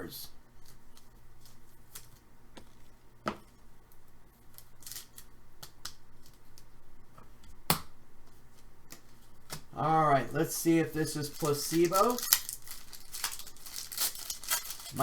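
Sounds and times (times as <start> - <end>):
cards and packaging rustling: 0.6 - 3.6, 4.4 - 6.7, 8.3 - 15.0.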